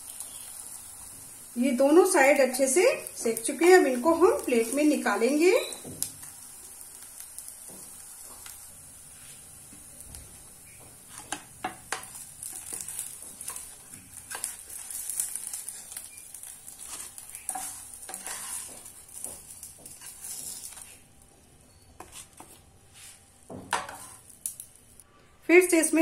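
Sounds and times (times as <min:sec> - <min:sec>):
kababs sizzling in oil: 0:00.0 - 0:26.0
wooden spatula scraping a pan: 0:11.0 - 0:16.0, 0:16.7 - 0:21.0, 0:22.0 - 0:24.3.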